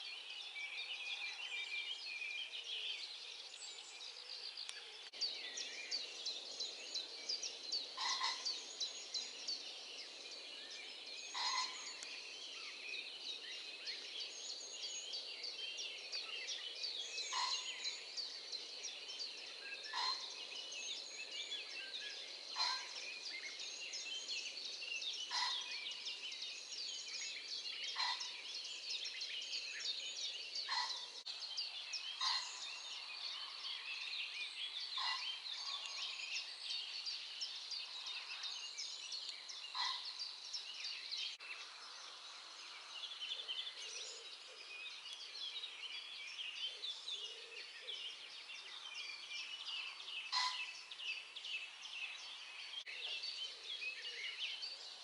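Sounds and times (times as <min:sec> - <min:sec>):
songbirds twittering and trilling: 0:00.0 - 0:55.0
loud bird call: 0:50.3 - 0:50.7.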